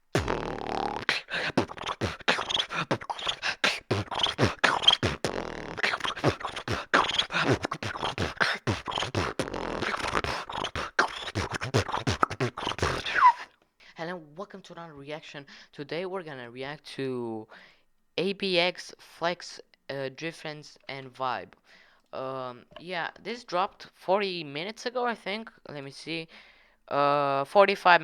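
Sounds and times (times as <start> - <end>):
person beatboxing: 0.0 - 13.5.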